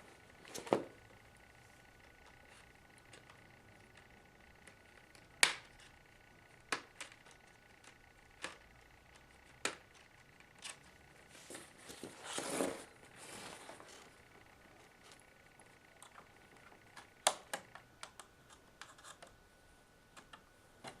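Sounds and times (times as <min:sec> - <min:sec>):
plastic scraping and rustling: 0:09.4 - 0:14.1.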